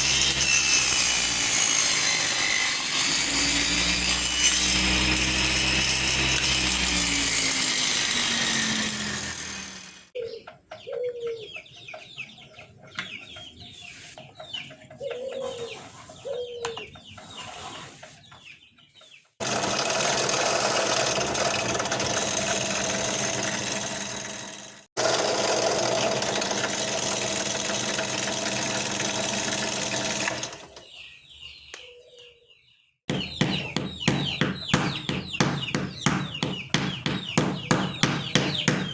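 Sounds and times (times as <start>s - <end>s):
table saw motor: 0.0s - 10.1s, 19.4s - 30.8s
small birds chirping: 10.1s - 19.4s, 30.7s - 38.9s
chickens clucking: 10.2s - 19.4s.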